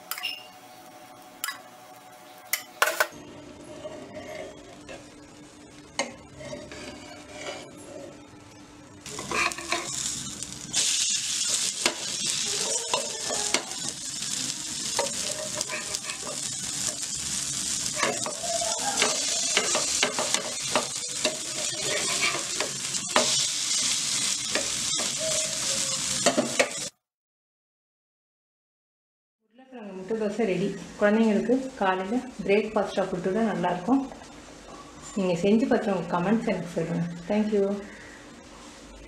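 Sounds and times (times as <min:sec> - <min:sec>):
dosas sizzling on a pan: 0:00.0 - 0:27.0
metal spatula scraping and tapping: 0:06.0 - 0:07.8, 0:09.2 - 0:10.0, 0:15.0 - 0:16.4, 0:19.0 - 0:23.4.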